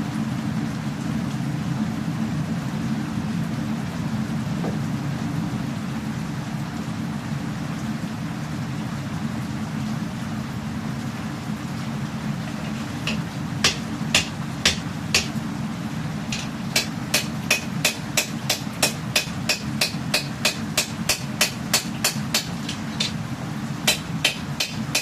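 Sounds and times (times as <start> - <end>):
hammer striking steel: 12.5 - 15.4, 16.3 - 23.2, 23.9 - 25.0.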